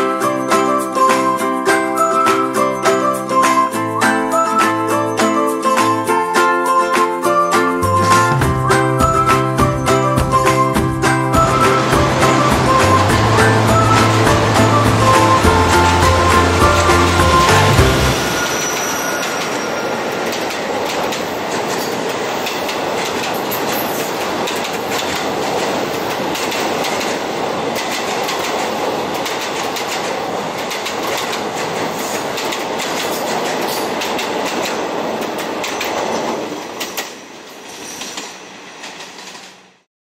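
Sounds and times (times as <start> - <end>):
train carriages rumbling past: 7.7 - 39.8
wheels clacking over rail joints: 7.8 - 39.8.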